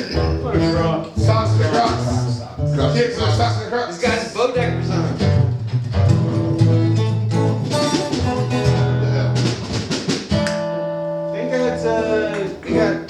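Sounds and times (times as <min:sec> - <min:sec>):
guitar: 0:00.0 - 0:13.0
drum hits: 0:04.0 - 0:10.7.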